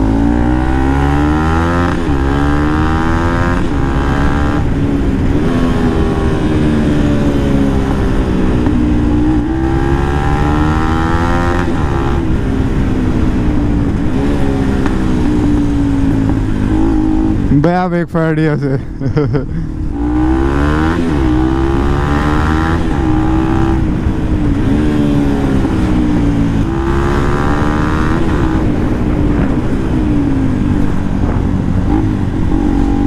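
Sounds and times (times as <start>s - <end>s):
motorcycle engine revving: 0.0s - 17.7s, 19.2s - 33.0s.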